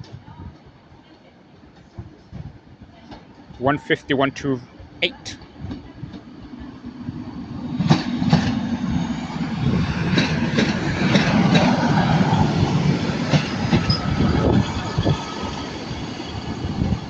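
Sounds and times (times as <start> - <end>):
train diesel engine: 3.1 - 17.0
wheels clacking over rail joints: 10.0 - 16.2.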